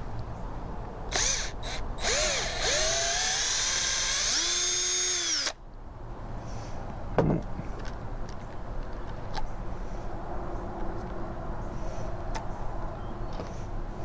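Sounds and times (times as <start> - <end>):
electric drill drilling plastic: 1.1 - 5.6.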